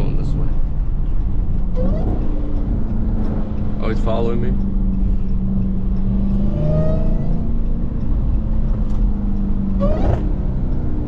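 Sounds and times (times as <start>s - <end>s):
car engine running inside cabin: 0.0s - 11.0s.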